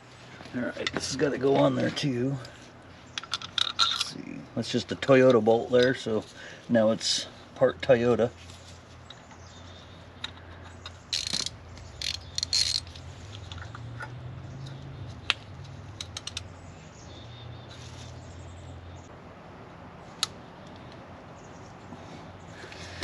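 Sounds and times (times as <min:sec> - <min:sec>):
socket ratchet ratcheting: 0:10.2 - 0:14.8.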